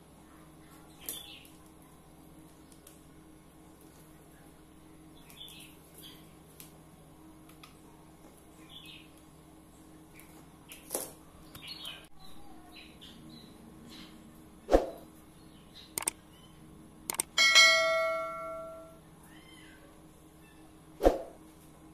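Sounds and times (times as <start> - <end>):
small birds chirping: 0.1 - 6.6, 7.6 - 17.3.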